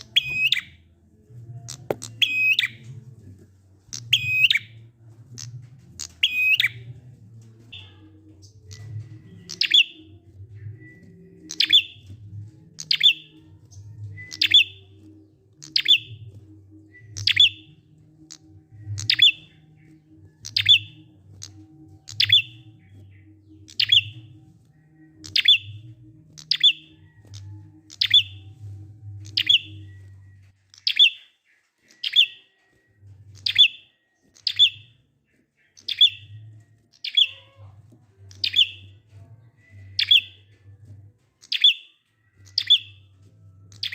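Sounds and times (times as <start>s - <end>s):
bird sharp chirps: 12.8s - 13.4s, 14.1s - 16.3s, 16.9s - 32.6s, 33.4s - 37.7s.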